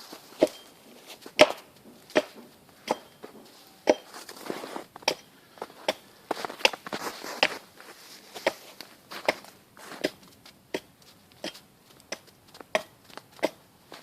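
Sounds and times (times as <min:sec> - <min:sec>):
sharp chopping blows: 0:01.3 - 0:03.1
short scraping sound: 0:02.9 - 0:05.2.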